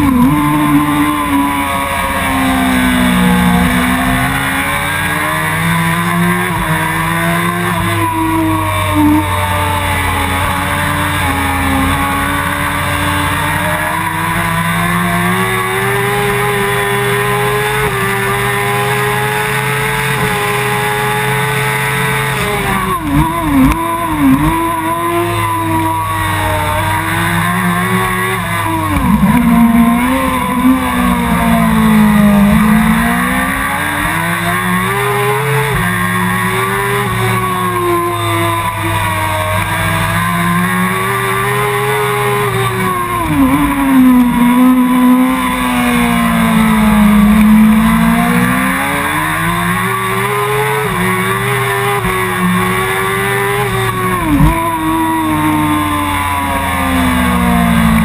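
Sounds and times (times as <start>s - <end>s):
motorcycle engine at racing revs: 0.0s - 58.0s.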